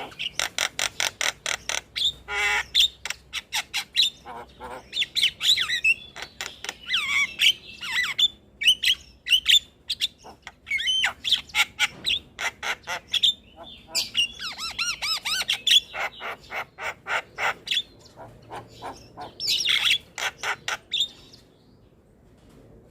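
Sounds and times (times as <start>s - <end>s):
bird warbling: 0.0s - 21.2s
bird squawking and whistling: 6.8s - 17.9s.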